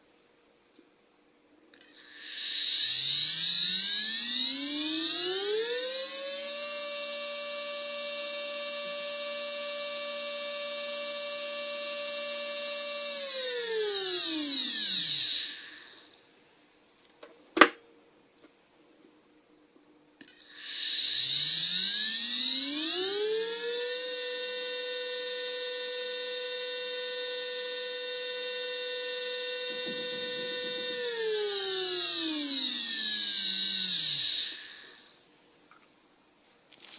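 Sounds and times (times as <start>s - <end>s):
micromotor high whine: 1.8s - 16.3s, 20.4s - 35.2s.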